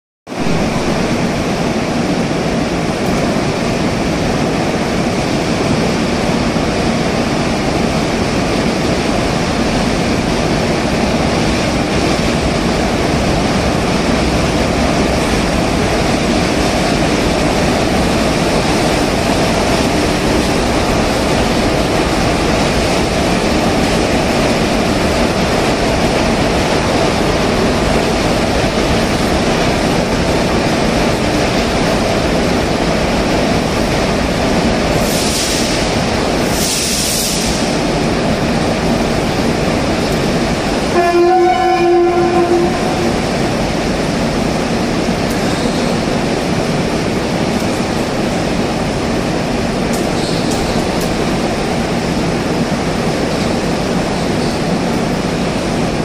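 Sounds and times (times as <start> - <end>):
goods train rolling on rails: 0.3 - 56.0.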